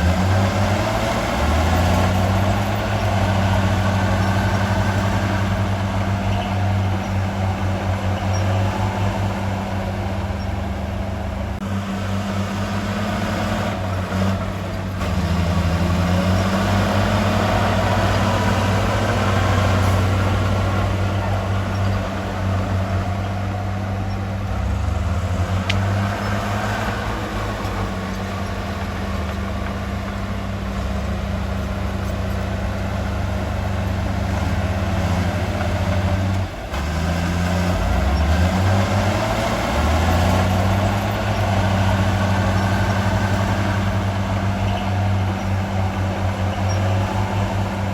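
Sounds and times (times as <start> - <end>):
heavy diesel machinery engine: 0.0 - 47.9.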